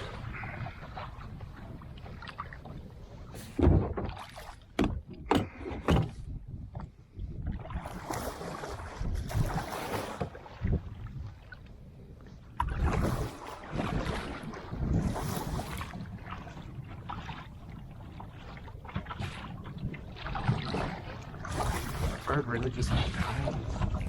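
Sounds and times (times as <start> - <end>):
paddle splashing water: 0.0 - 24.0
water swishing: 0.0 - 24.0
wind rumble: 0.0 - 24.0
paddle knocking against kayak hull: 3.6 - 6.9.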